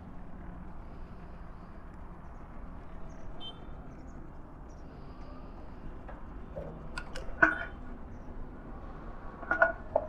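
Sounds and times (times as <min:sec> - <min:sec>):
low outdoor rumble: 0:06.2 - 0:10.0.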